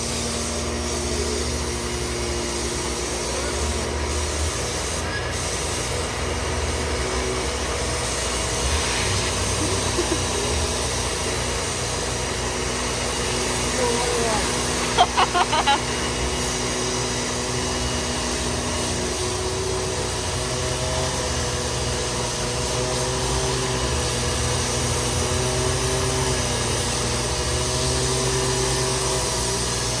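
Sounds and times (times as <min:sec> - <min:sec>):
constant hiss: 0:00.0 - 0:22.6.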